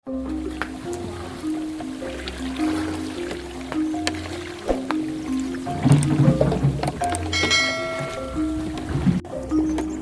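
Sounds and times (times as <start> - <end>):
held notes over low bass: 0.1 - 10.0.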